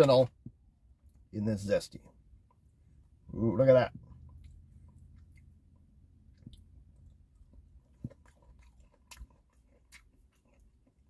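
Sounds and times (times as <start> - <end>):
person chewing fried chicken: 4.0 - 11.0.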